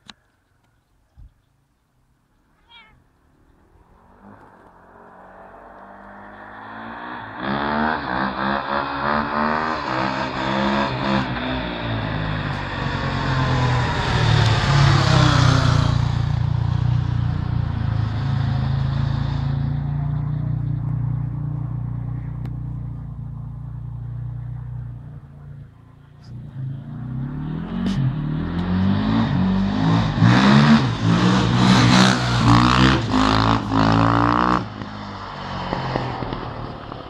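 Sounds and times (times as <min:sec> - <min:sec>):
dirt bike engine revving: 0:26.3 - 0:34.9.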